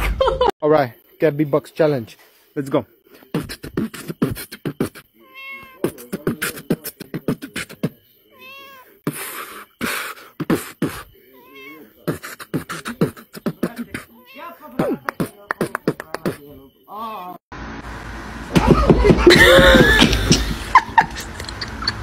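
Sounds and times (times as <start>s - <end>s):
person beatboxing: 3.3s - 5.1s, 5.8s - 8.0s, 9.1s - 11.1s, 12.1s - 14.1s, 14.8s - 16.5s
cat meowing: 5.2s - 5.9s, 8.3s - 9.0s, 11.3s - 12.0s, 14.1s - 14.8s.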